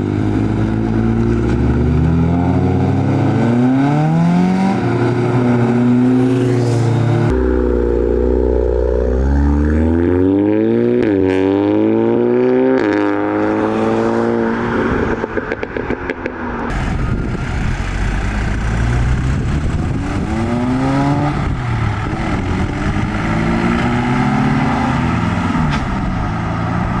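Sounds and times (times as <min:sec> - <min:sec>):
car engines accelerating: 0:00.0 - 0:27.0
exhaust crackles: 0:16.7 - 0:27.0.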